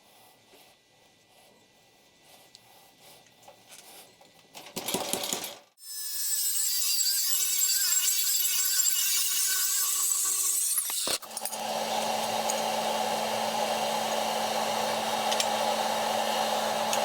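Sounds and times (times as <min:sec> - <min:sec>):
power tool whining: 0:06.6 - 0:17.0.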